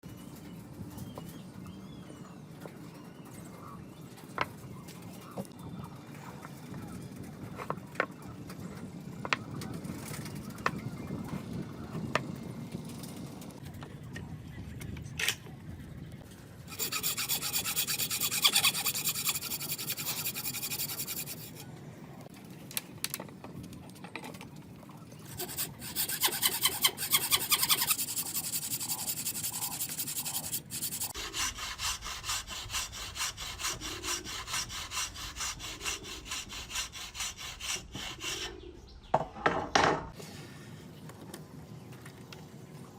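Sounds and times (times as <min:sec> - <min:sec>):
hand saw cutting wood: 0:16.7 - 0:21.6, 0:25.3 - 0:38.6.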